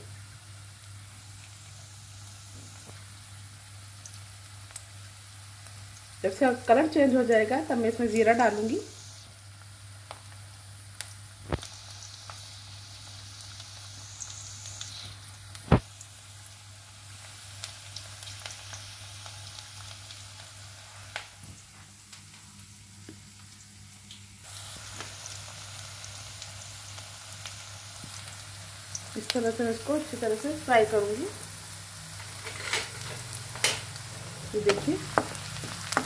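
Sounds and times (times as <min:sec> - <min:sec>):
onions sizzling in hot oil: 0:00.0 - 0:36.0
small oil pops: 0:15.6 - 0:15.9.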